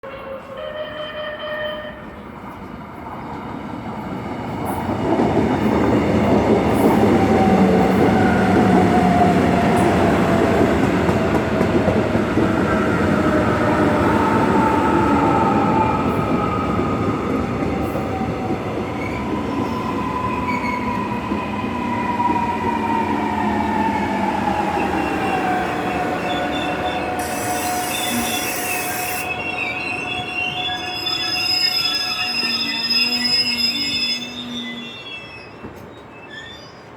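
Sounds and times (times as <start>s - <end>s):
train rolling noise: 1.5s - 36.9s
train brakes squealing: 24.6s - 36.9s.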